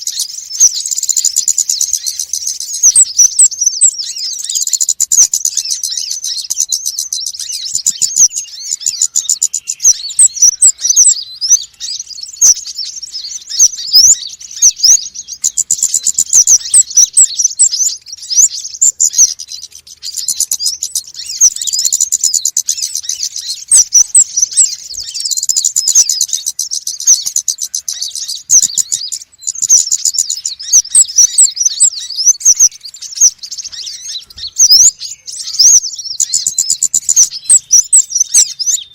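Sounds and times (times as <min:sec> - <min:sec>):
small birds chirping and twittering: 0:00.0 - 0:38.9.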